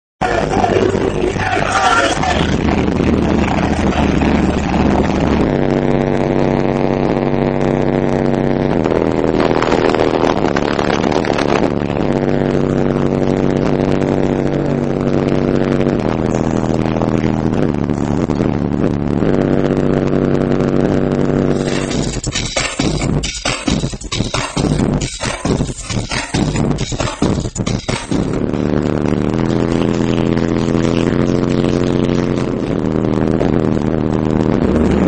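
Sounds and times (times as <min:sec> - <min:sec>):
loud bass-heavy music: 0:00.0 - 0:35.0
buzzing low synth: 0:00.2 - 0:35.0.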